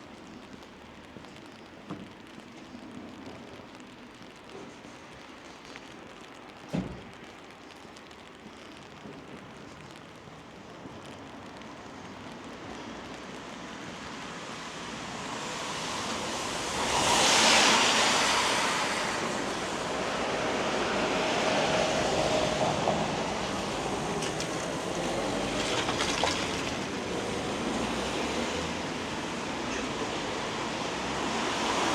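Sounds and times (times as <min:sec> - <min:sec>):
rain: 0:00.0 - 0:31.9
tyre hiss on wet road: 0:00.0 - 0:31.9.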